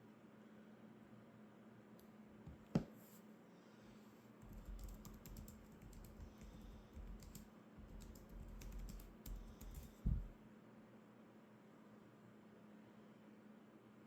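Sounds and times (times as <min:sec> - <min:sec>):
typing on computer keyboard: 0:04.4 - 0:10.3
heavy low thump: 0:10.0 - 0:10.4.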